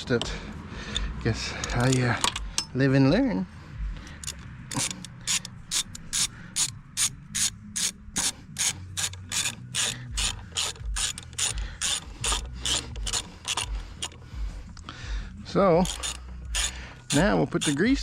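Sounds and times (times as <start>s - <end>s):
ratchet wrench clicking: 0.9s - 2.8s, 4.0s - 14.2s, 15.8s - 18.0s.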